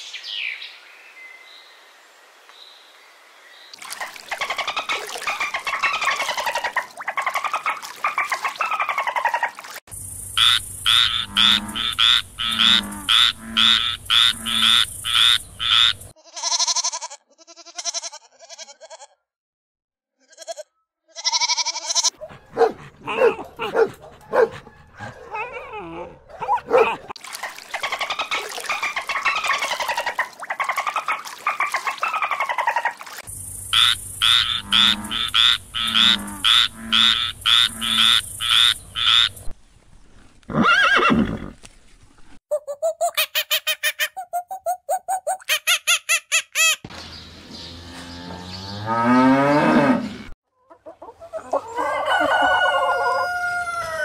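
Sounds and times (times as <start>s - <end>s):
frog croaking: 10.4s - 16.1s, 33.6s - 39.5s
dog yelping: 22.0s - 27.1s
dog whining: 22.1s - 27.0s
horse whinny: 40.5s - 41.6s.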